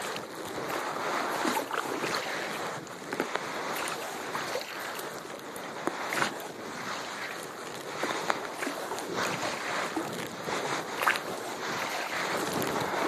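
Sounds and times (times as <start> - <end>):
paddle splashing water: 0.0 - 13.0
wash of water: 0.0 - 13.0
wind on microphone: 0.0 - 13.0
water dripping: 10.9 - 12.9.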